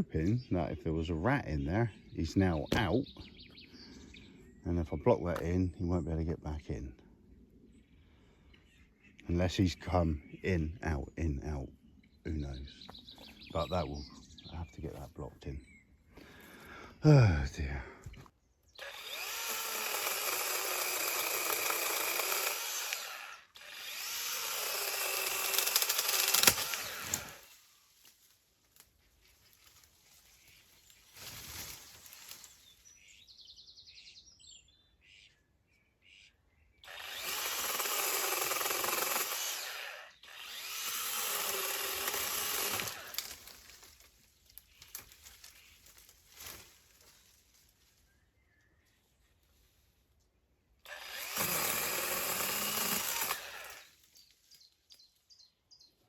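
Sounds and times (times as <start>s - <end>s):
handheld power tool running: 18.8s - 27.5s, 36.8s - 43.5s, 50.9s - 54.1s.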